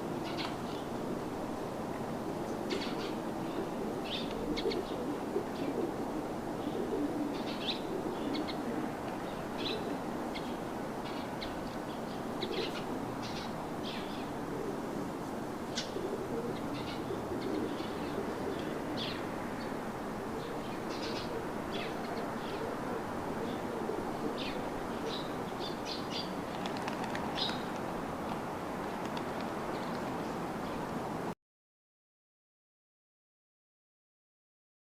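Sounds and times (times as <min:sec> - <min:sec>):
background hiss: 0:00.0 - 0:31.3
birds chirping: 0:20.4 - 0:22.8, 0:23.4 - 0:27.8.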